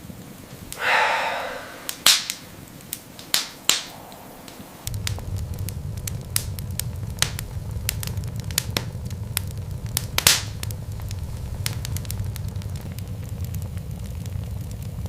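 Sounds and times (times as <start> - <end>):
wood fire crackling: 0.0 - 15.0
sharp pops: 0.5 - 6.6, 10.0 - 13.0
low steady rumble: 3.6 - 15.0.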